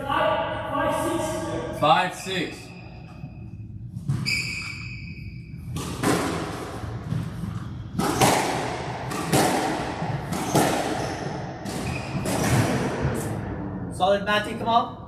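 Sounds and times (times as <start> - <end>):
squash ball hits echoing: 5.6 - 13.6.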